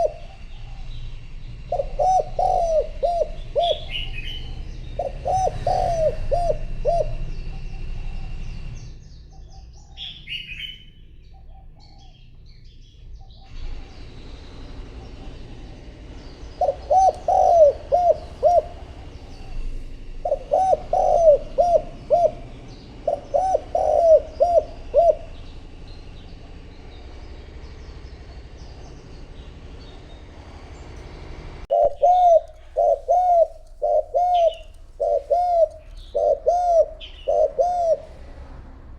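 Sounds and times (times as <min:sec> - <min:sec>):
dove cooing: 0:00.0 - 0:08.8, 0:13.5 - 0:27.3, 0:31.7 - 0:38.6
small birds chirping: 0:00.0 - 0:38.9.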